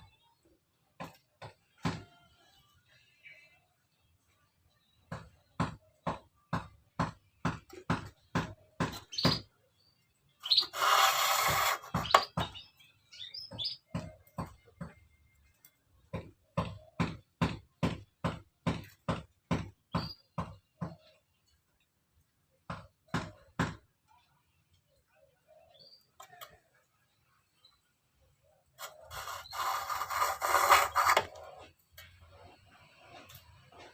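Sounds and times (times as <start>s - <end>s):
sharp scraping strokes: 10.4s - 12.4s, 28.8s - 31.7s.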